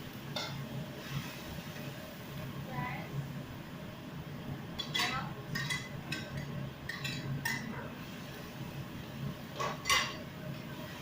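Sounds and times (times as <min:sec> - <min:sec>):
utensil clinking on dishes: 0:04.8 - 0:07.7, 0:09.6 - 0:10.2.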